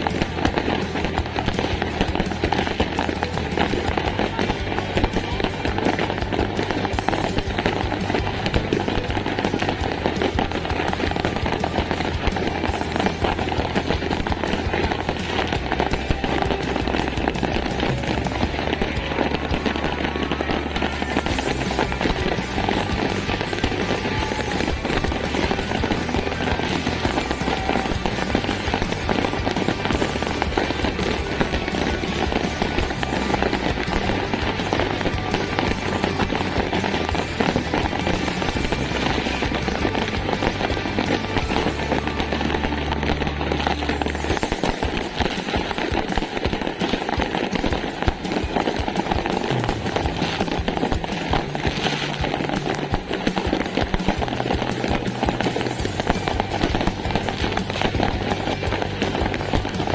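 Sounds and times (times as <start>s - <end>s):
fireworks popping and crackling: 0.0s - 59.9s
music: 0.0s - 59.9s.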